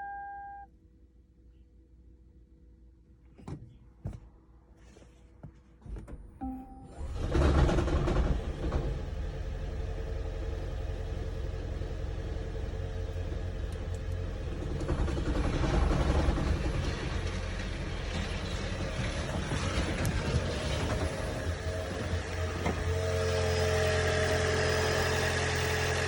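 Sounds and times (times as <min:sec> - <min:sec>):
car engine with metallic rattle: 0:06.0 - 0:26.0.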